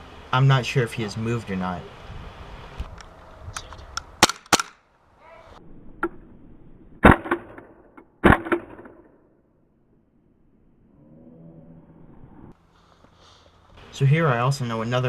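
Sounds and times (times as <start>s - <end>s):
airsoft pistol shots: 4.2s - 4.8s, 7.0s - 9.1s.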